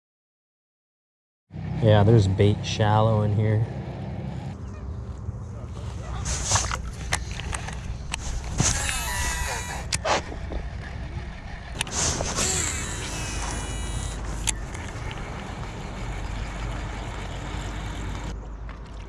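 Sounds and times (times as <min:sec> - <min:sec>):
boat motor humming: 0:02.2 - 0:19.0
sharp clicks: 0:06.3 - 0:15.8.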